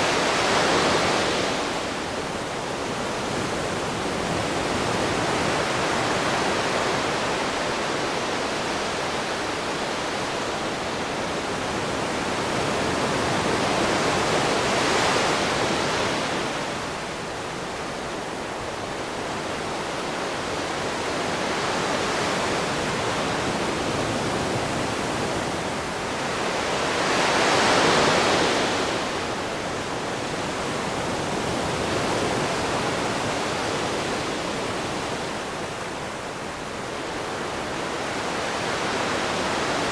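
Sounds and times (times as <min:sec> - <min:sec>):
ocean waves washing onto shore: 0:00.0 - 0:39.9.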